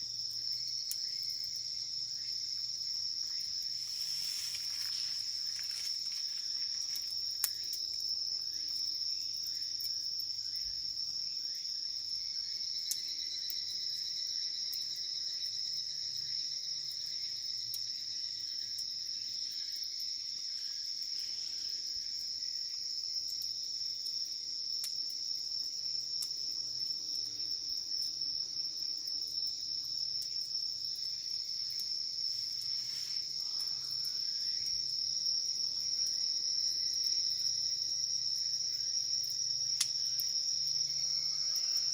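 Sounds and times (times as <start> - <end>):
insects trilling: 0.0 - 41.9
lower insect song: 0.0 - 41.9
campfire popping: 0.4 - 8.7.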